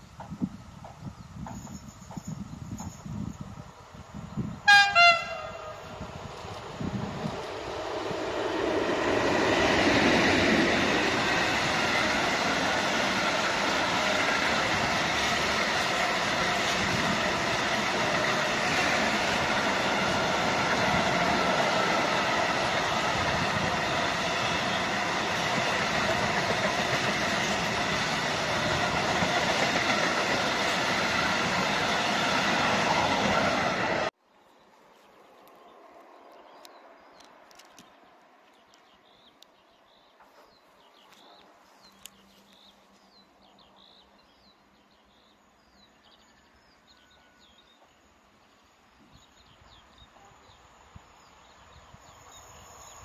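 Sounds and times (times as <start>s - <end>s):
train wheels rumbling on rails: 0.0s - 34.2s.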